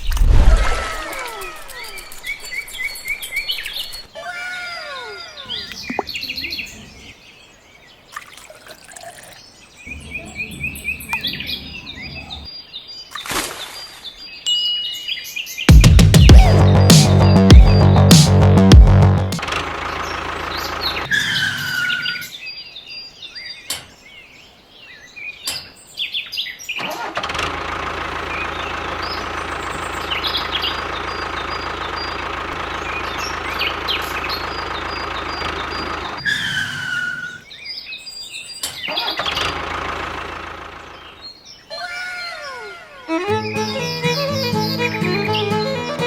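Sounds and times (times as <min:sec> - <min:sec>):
birds chirping: 0:00.0 - 0:46.0
small engine running: 0:19.2 - 0:21.1, 0:26.9 - 0:36.2, 0:39.2 - 0:41.2.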